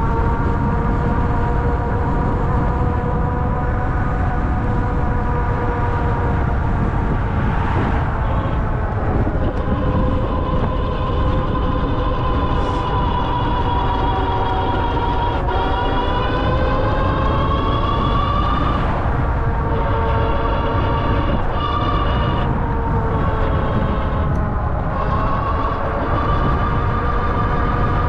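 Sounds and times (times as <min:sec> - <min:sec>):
tyres on road: 0:00.0 - 0:28.0
wind rumble on microphone: 0:00.0 - 0:28.0
electric motor whine: 0:09.4 - 0:18.9, 0:19.6 - 0:28.0.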